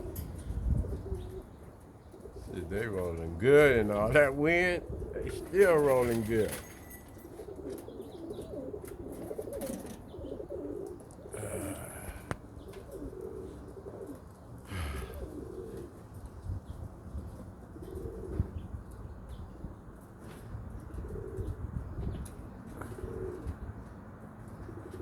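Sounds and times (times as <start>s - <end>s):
wind rumbling on microphone: 0.0s - 6.2s, 16.0s - 23.8s
pigeons cooing: 0.0s - 25.0s.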